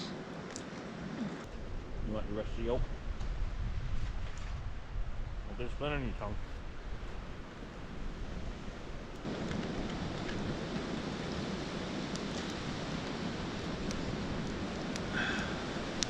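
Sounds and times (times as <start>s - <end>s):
wind rushing over microphone: 0.0s - 16.0s
faint sharp crackles: 9.1s - 16.0s.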